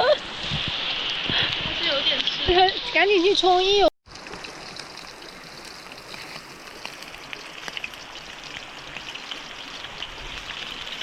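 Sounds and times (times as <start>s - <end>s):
meat deep-frying in oil: 3.4s - 11.0s
oil popping and crackling: 4.1s - 11.0s.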